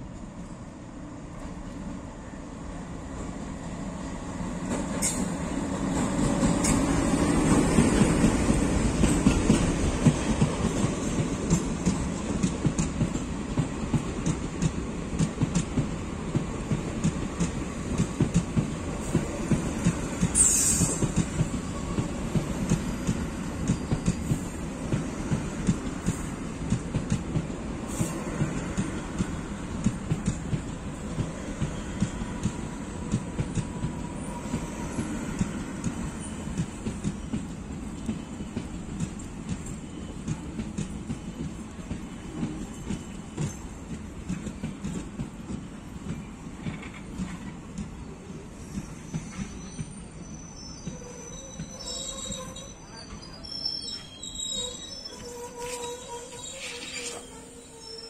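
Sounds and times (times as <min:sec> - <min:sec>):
low train rumble: 0:00.0 - 0:58.0
train wheels clacking over rail joints: 0:04.6 - 0:50.0
high squeal sliding downward: 0:48.9 - 0:58.0.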